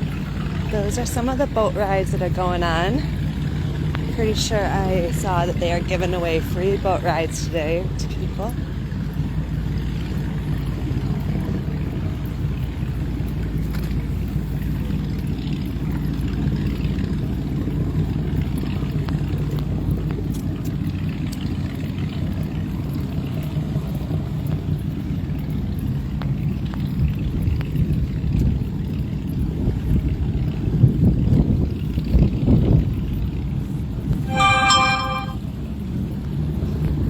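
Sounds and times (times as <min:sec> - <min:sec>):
motorboat engine rumble: 0:00.0 - 0:34.3.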